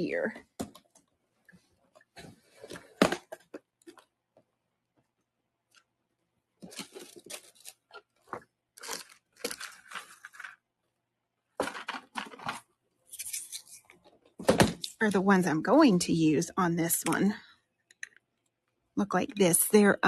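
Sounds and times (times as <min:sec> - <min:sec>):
plastic packaging crinkling: 0:06.6 - 0:10.6.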